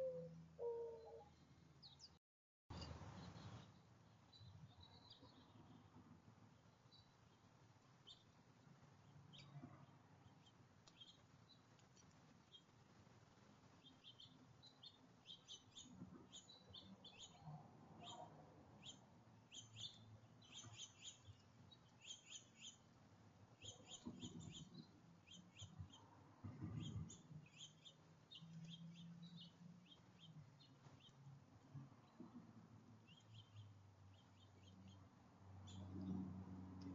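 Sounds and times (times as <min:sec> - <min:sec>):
small birds chirping: 0:00.0 - 0:06.0, 0:06.6 - 0:12.8, 0:13.6 - 0:36.2.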